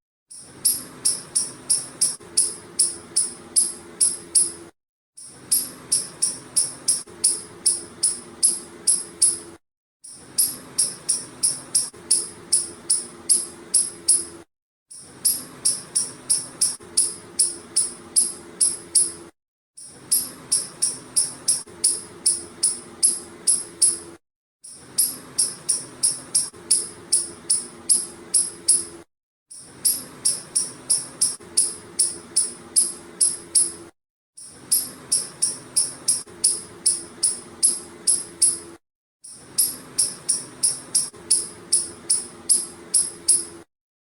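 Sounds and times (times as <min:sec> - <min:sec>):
squirrel chirping: 0:00.6 - 0:04.6, 0:05.5 - 0:09.4, 0:10.4 - 0:14.3, 0:15.2 - 0:19.1, 0:20.1 - 0:24.0, 0:25.0 - 0:28.9, 0:29.8 - 0:33.7, 0:34.7 - 0:38.6, 0:39.6 - 0:43.5.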